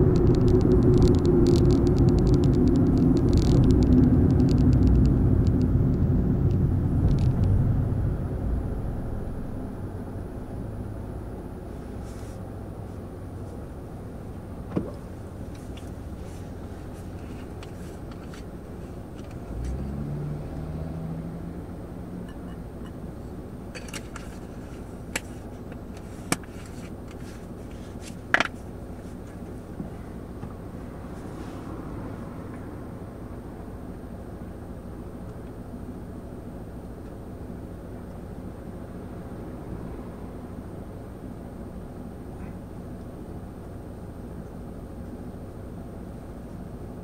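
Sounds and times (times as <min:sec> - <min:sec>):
low tone: 0:00.0 - 0:13.4
car engine idling hum: 0:00.0 - 0:47.0.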